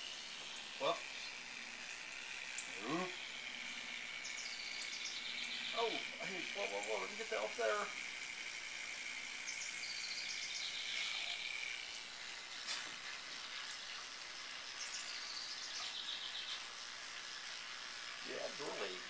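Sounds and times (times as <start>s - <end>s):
bird chirps: 4.2s - 6.0s, 14.8s - 16.7s.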